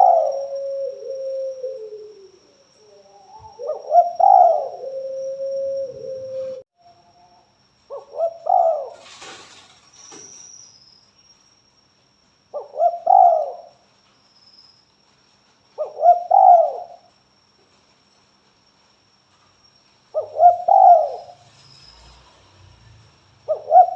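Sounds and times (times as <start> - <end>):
dove cooing: 0.0 - 6.6, 7.9 - 9.1, 12.6 - 13.8, 15.8 - 17.0, 20.2 - 21.4, 23.5 - 23.9.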